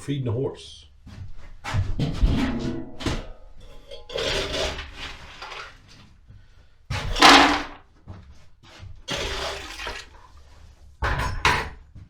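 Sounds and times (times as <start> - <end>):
objects knocking and clattering: 1.7 - 6.1, 6.9 - 8.2, 9.1 - 12.0.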